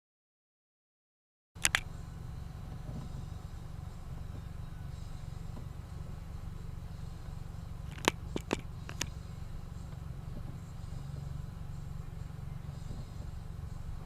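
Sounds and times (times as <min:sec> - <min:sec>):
sharp clicks: 0:01.6 - 0:01.9, 0:07.9 - 0:09.2
low rumble inside car: 0:01.6 - 0:14.0.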